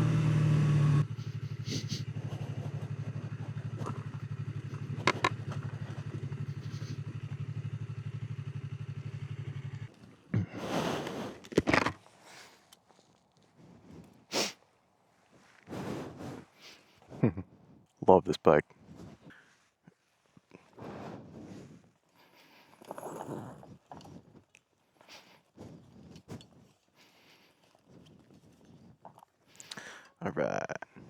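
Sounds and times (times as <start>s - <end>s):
motorcycle engine idling: 0.0s - 10.5s.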